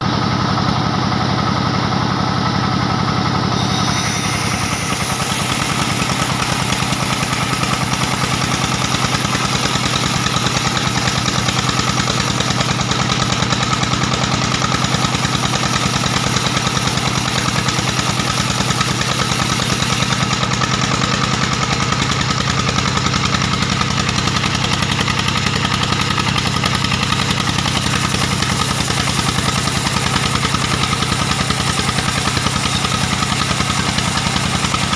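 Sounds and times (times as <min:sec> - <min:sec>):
diesel engine running: 0:00.0 - 0:34.9
harsh hiss: 0:03.6 - 0:12.8, 0:14.7 - 0:20.4.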